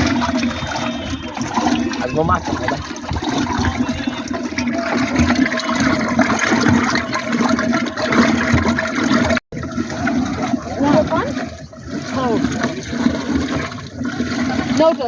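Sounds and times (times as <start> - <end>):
water flowing: 0.0 - 15.0.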